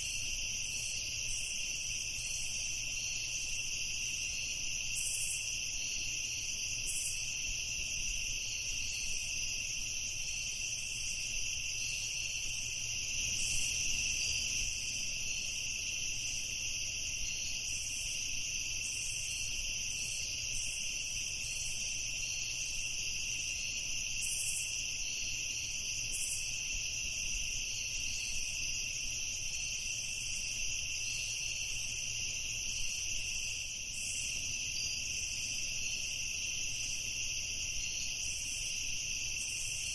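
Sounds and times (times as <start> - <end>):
crickets trilling: 0.0 - 39.9
high insect chirps: 0.0 - 39.9.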